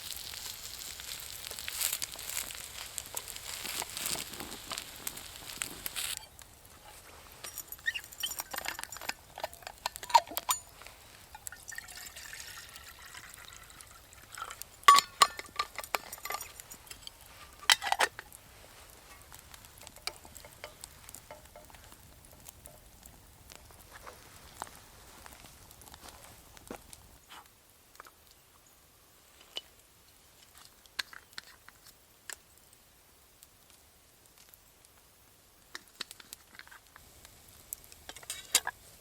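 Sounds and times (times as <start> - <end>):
metal cookware clinking: 6.9 - 18.2, 19.8 - 21.8
liquid pouring: 11.3 - 14.6.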